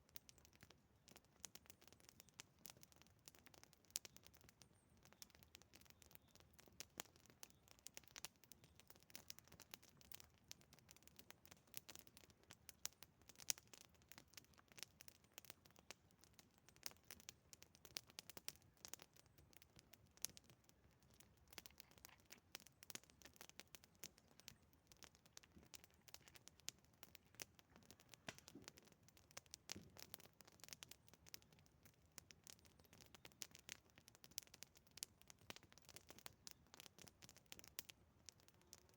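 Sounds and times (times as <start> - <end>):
campfire crackling and popping: 0.0 - 38.9
loud fire snap: 28.2 - 28.8.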